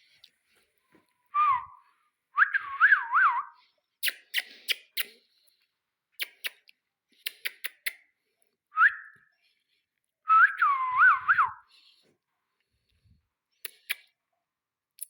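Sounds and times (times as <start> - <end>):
person whistling: 1.3 - 1.8, 2.4 - 3.6, 8.8 - 9.3, 10.3 - 11.7.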